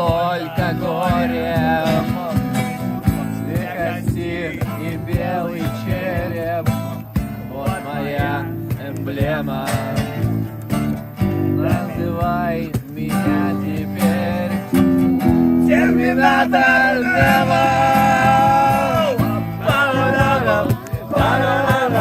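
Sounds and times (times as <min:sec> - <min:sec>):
guitar: 0:00.0 - 0:22.0
person singing: 0:11.4 - 0:22.0.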